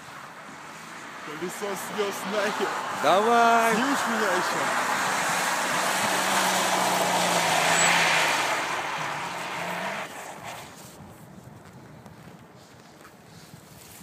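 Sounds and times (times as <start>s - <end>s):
car engine at high revs: 0.5s - 10.6s.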